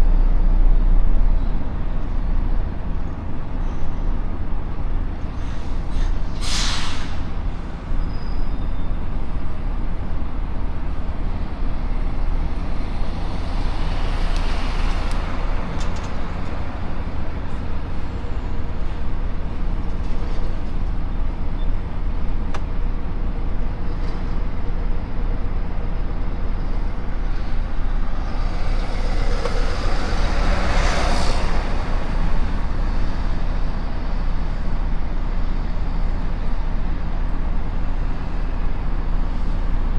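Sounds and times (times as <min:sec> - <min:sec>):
heavy truck engine and road rumble: 0:00.0 - 0:39.9
rushes of noise: 0:26.8 - 0:34.6.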